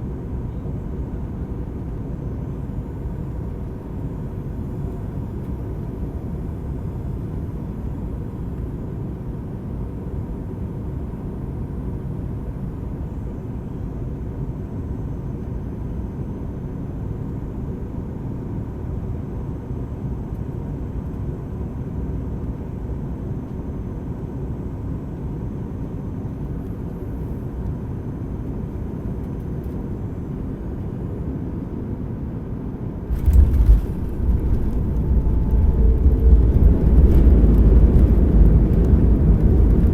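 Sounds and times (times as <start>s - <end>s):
airplane cabin rumble: 32.5s - 39.9s
wheels touching down on runway: 33.1s - 39.9s.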